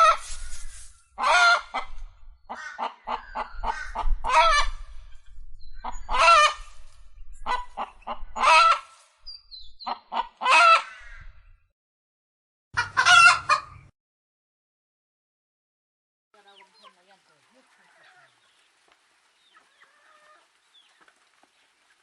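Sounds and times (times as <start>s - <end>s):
fowl honking calls: 7.5s - 9.0s, 10.1s - 11.2s, 12.8s - 13.8s.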